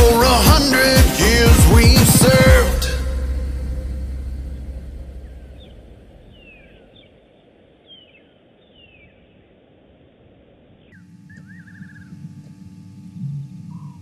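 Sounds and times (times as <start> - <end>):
music: 0.0 - 5.6, 11.3 - 14.0
faint outdoor bush ambience: 2.9 - 14.0
descending whistled bird calls: 5.2 - 9.4, 10.8 - 12.2.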